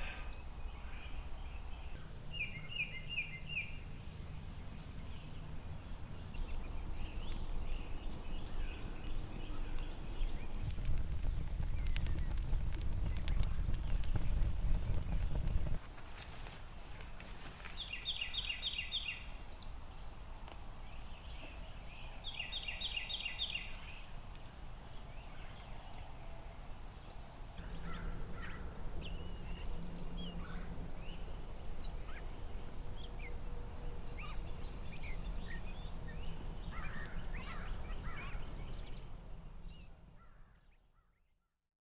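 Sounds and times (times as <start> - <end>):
birds trilling and chirping: 27.0 - 39.2.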